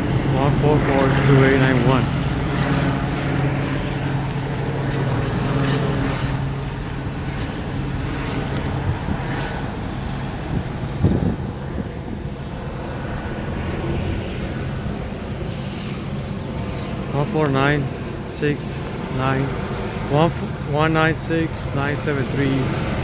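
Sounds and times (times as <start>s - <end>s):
passing vehicles: 0.0s - 23.0s
vehicle engine hum: 0.0s - 23.0s.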